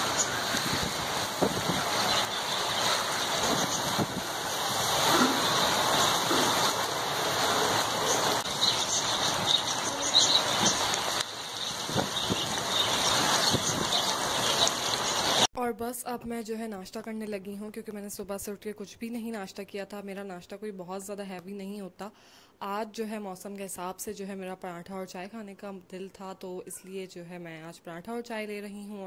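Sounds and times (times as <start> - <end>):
heavy rain on concrete: 0.0 - 15.5
raindrops splashing: 0.0 - 15.5.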